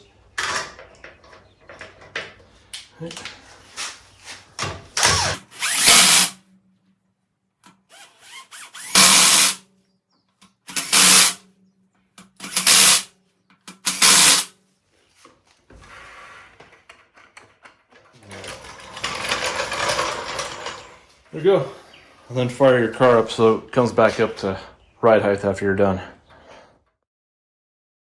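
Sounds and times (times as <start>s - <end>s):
impact wrench bursts: 4.9s - 6.4s, 7.8s - 9.6s, 10.6s - 11.4s, 12.2s - 13.1s, 13.7s - 14.5s.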